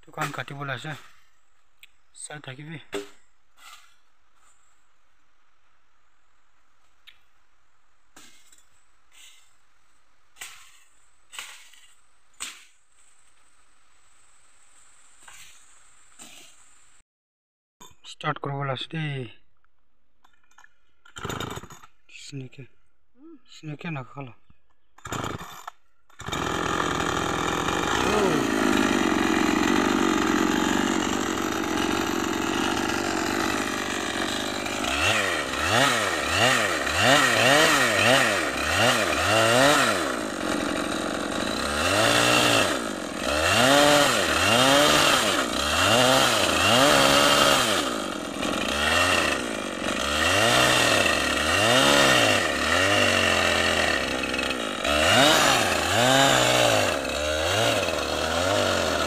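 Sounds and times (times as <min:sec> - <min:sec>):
chainsaw engine revving: 0:21.2 - 0:21.8, 0:25.0 - 0:59.0.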